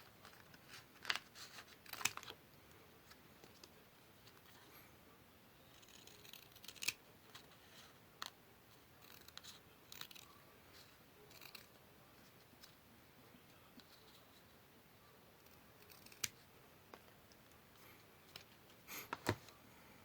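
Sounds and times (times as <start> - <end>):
scissors snipping paper: 0.5 - 2.3, 5.7 - 7.0, 9.0 - 10.3, 11.3 - 11.7, 15.4 - 16.4.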